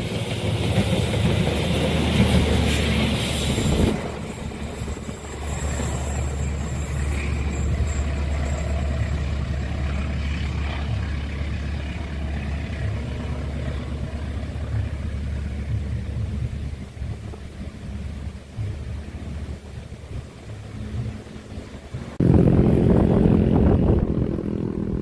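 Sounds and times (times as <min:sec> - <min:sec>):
low engine rumble idling: 0:07.7 - 0:25.0
loud passing sound: 0:22.0 - 0:25.0.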